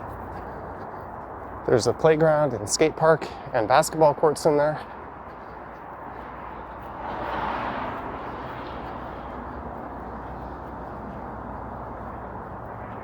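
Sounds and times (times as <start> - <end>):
city traffic noise: 0.0 - 13.0
vehicle passing close by: 6.0 - 13.0.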